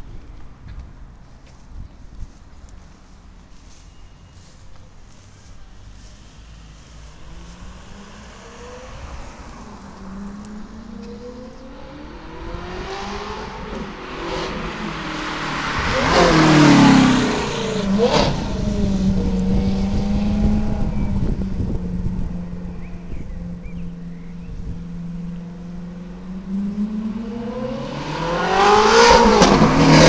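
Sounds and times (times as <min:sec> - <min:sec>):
sports car engine revving past: 0:06.6 - 0:30.0.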